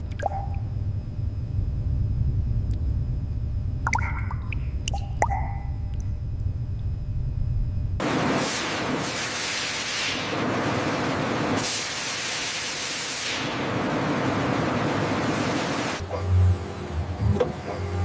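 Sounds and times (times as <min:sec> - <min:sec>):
low rumble: 0:00.0 - 0:08.0
loud spraying hiss: 0:08.0 - 0:13.6.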